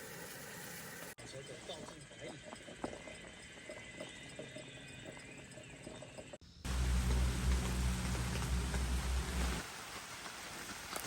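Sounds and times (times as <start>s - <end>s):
low steady hum: 6.7s - 9.6s
steady rain falling: 6.7s - 11.0s.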